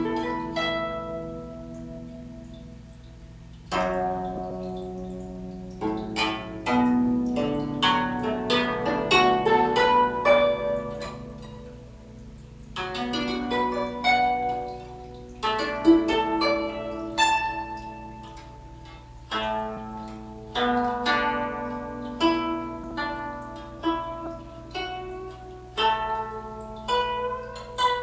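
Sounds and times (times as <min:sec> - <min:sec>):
guzheng plucked melody: 0:00.0 - 0:28.0.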